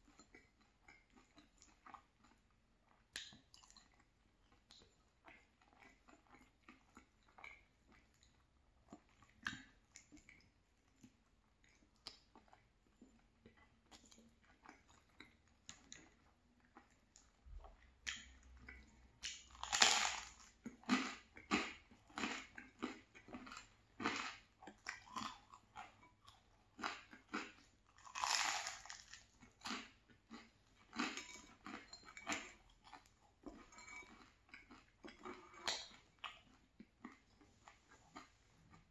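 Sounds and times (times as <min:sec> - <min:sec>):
soft chewing of pasta: 0:00.0 - 0:38.9
crunching garlic bread: 0:19.2 - 0:37.2.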